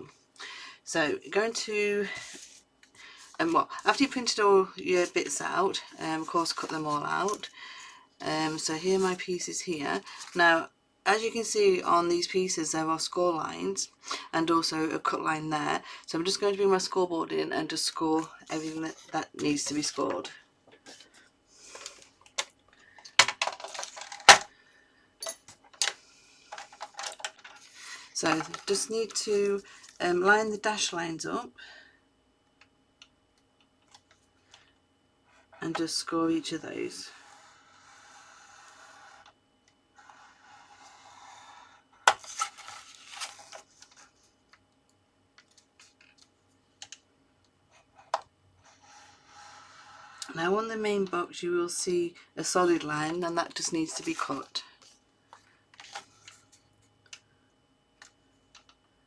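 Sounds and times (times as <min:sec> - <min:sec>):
tool scraping along cardstock: 0:37.1 - 0:39.3, 0:48.6 - 0:50.4.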